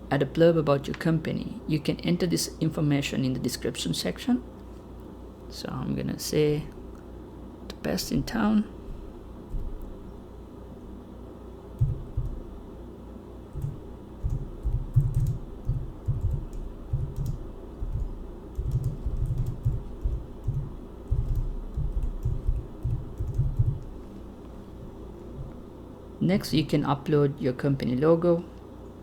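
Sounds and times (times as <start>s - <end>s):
typing on computer keyboard: 11.8s - 12.4s, 13.6s - 23.9s.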